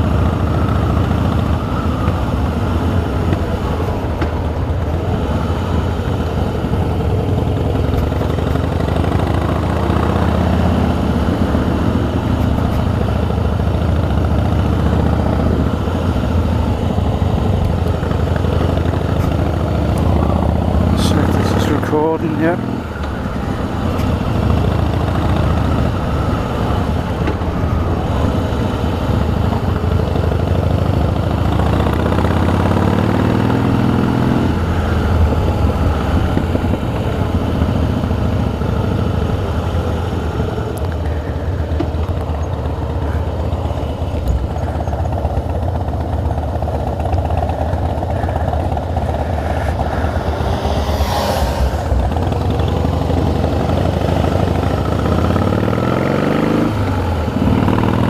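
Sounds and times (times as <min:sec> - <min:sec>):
motorcycle engine running: 0:00.0 - 0:58.0
wind noise: 0:47.6 - 0:54.6.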